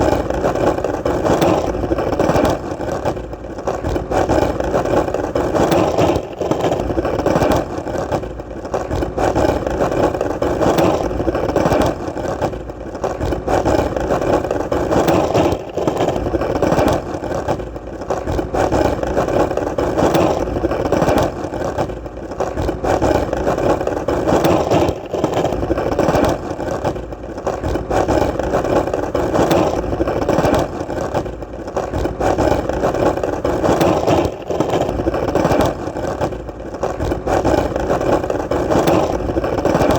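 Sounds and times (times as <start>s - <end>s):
skateboard wheels rolling: 0.0s - 39.9s.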